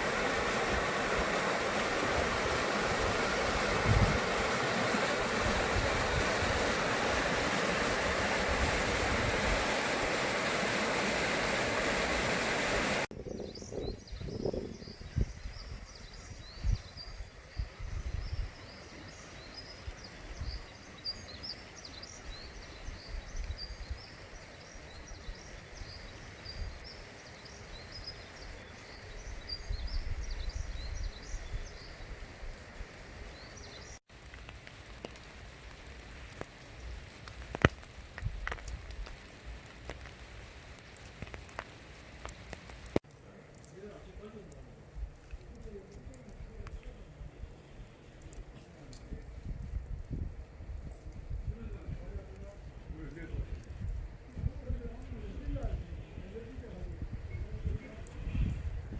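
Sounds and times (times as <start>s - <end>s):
steady outdoor hiss: 0.0s - 58.9s
small birds chirping: 13.2s - 34.0s.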